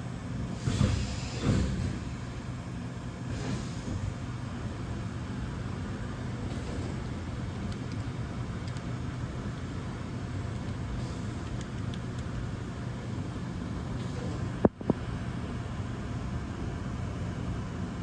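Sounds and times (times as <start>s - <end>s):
machine whirring and hissing: 0.5s - 2.3s, 3.2s - 4.3s.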